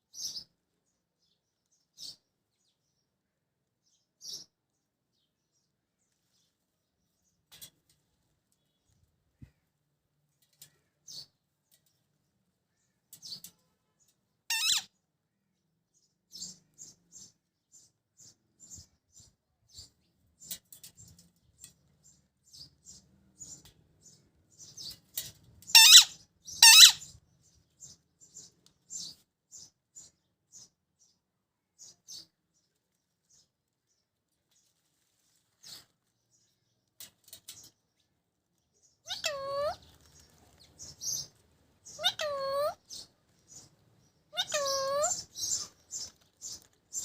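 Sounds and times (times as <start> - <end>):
parrot chirping and squeaking: 14.5 - 14.9, 25.7 - 27.1, 39.1 - 39.8, 41.9 - 42.8, 44.3 - 46.1
parrot screeching: 14.5 - 14.9, 25.7 - 27.0, 42.0 - 42.8, 44.4 - 45.2.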